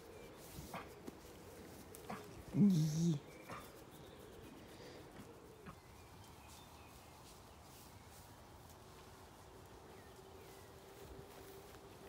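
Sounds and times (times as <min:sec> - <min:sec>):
distant bird calls: 0:00.0 - 0:06.6.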